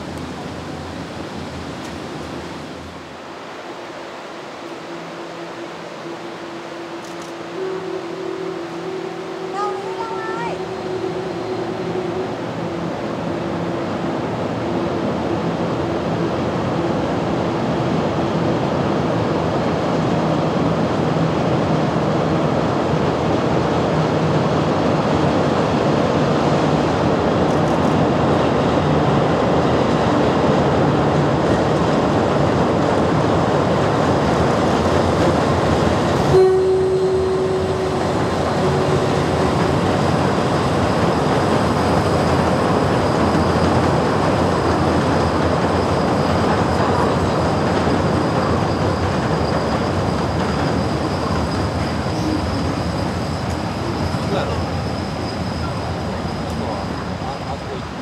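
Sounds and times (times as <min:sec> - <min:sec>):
train wheels rumbling on track: 0:00.0 - 0:58.0
short steady tone: 0:36.2 - 0:39.9.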